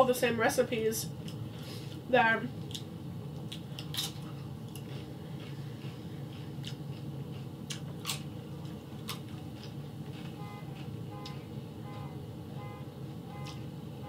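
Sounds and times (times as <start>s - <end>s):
chip crunched and chewed: 2.6s - 11.4s
distant car alarm beeps: 10.4s - 14.0s.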